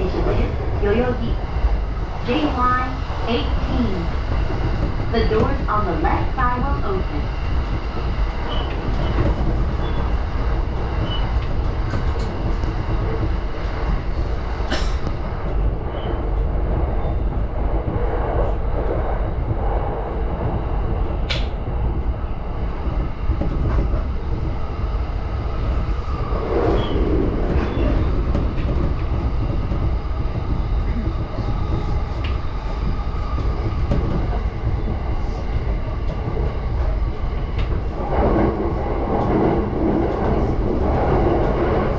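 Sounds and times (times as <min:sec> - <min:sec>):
train wheels rumbling on rail: 0:00.0 - 0:41.9
sharp clicks: 0:21.2 - 0:21.6.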